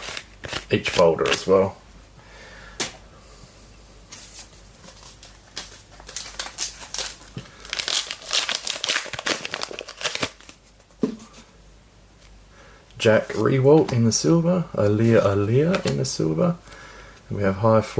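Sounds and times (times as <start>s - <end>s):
wrapper crinkling and tearing: 0.0s - 1.5s, 4.9s - 10.7s.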